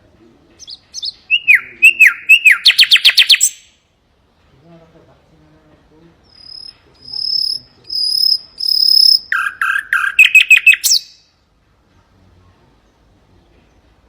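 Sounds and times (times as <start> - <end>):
nightingale singing: 0.5 - 3.9, 6.2 - 11.4.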